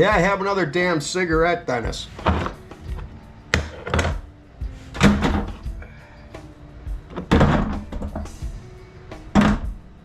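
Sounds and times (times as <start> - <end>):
background music: 0.0 - 10.0
parts knocking on a workbench: 2.2 - 2.6, 3.5 - 4.3, 5.0 - 5.6, 7.1 - 8.4, 9.3 - 9.8.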